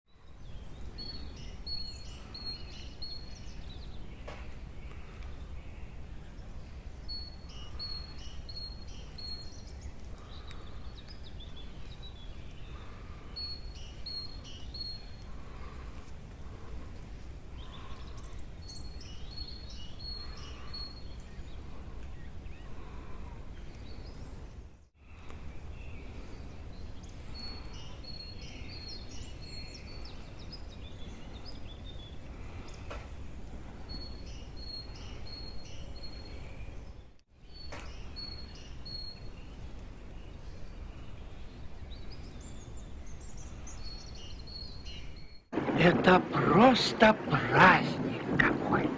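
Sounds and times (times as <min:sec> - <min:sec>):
steady low rumble: 0:45.6 - 0:48.9.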